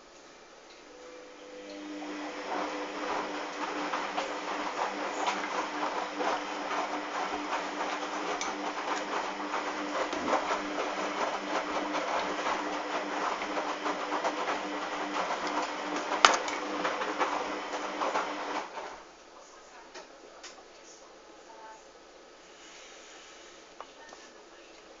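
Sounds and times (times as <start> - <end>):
washing machine running: 0.9 - 19.2.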